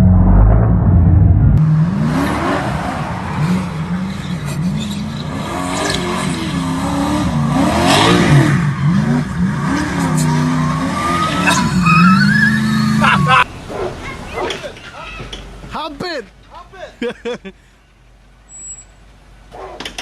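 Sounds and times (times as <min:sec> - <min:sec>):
car engine revving hard: 0:01.6 - 0:13.4.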